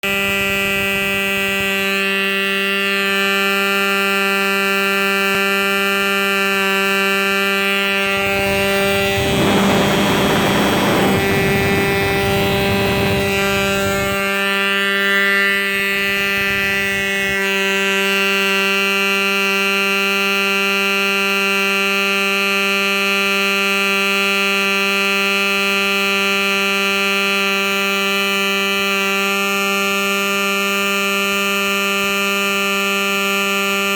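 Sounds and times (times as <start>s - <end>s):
model airplane engine running: 0.0s - 33.9s
broad rushing noise: 7.6s - 14.5s.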